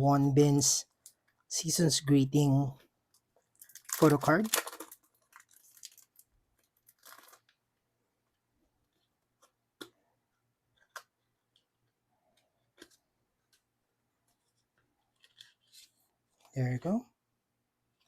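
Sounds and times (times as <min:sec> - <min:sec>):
packaging rustle: 0:03.5 - 0:07.6.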